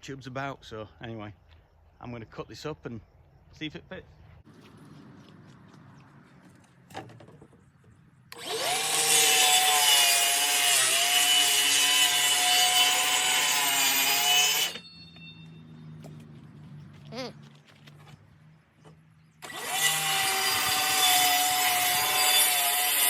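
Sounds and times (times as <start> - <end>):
power saw cutting wood: 8.3 - 14.9, 19.4 - 23.0.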